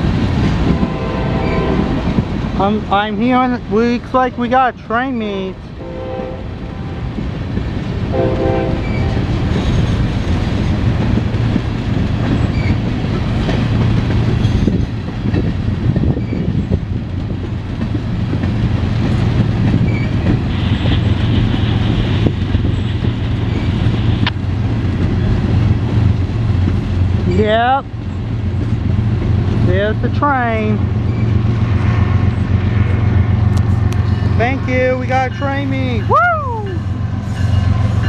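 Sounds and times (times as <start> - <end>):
freight train rumbling past: 0.0 - 38.0
train horn: 0.7 - 2.1, 5.8 - 7.2, 8.1 - 9.3
wheels clicking over rail joints: 8.8 - 31.7.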